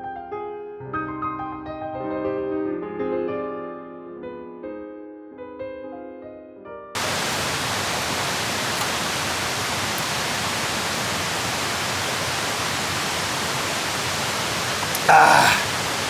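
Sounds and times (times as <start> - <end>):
faint ticks: 7.0 - 16.0
loud steady hiss: 7.0 - 16.0.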